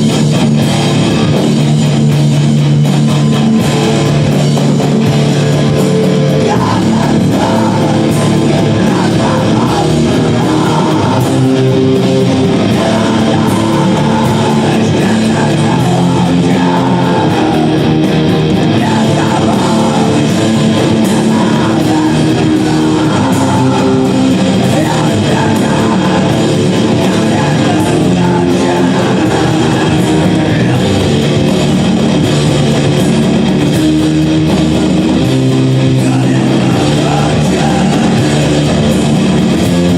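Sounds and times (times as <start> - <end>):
live rock music with electric guitar: 0.0 - 39.9.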